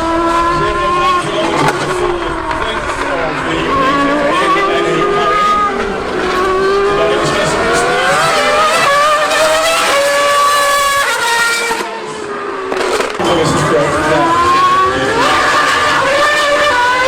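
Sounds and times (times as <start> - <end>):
racing engine accelerating: 0.0 - 17.0.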